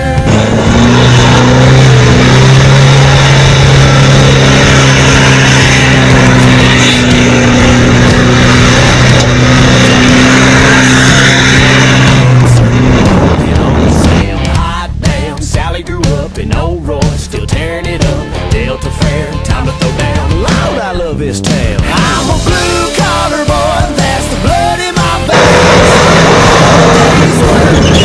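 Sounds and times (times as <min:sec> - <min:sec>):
engine at high revs: 0:00.0 - 0:14.3, 0:25.3 - 0:28.0
rushing noise: 0:00.0 - 0:14.3, 0:25.3 - 0:28.0.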